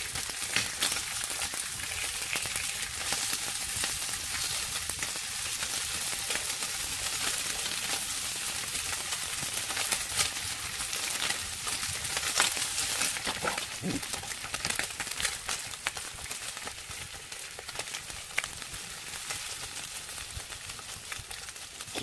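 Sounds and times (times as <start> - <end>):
pork sizzling over fire: 0.0 - 22.0
fat spitting and popping: 13.3 - 14.2.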